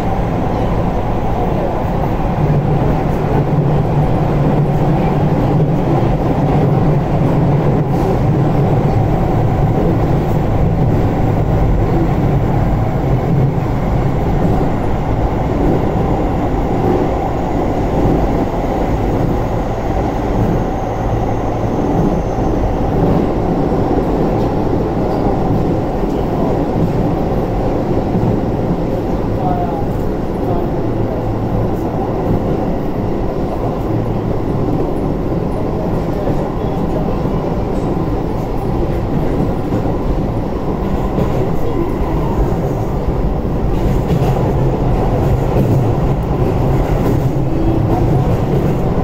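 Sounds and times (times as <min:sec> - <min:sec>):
train wheels rumbling on rails: 0:00.0 - 0:49.0.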